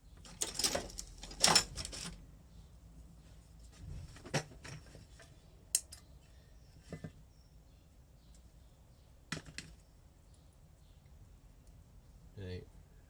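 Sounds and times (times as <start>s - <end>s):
metal parts clicking and tapping: 0.2s - 2.2s, 5.7s - 6.0s.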